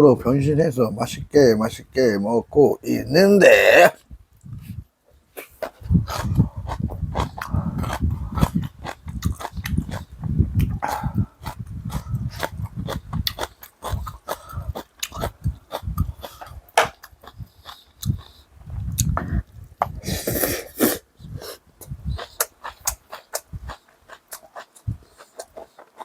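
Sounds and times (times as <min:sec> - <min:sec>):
person chewing: 0:05.4 - 0:26.0
breathy sniff or slurp: 0:20.0 - 0:21.6.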